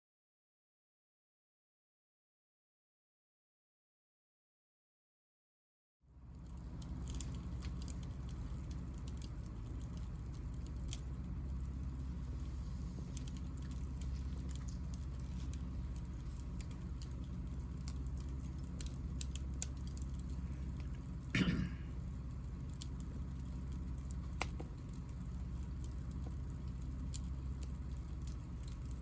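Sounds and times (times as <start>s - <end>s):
fire low rumble: 6.1s - 29.0s
wood fire crackling: 6.1s - 29.0s.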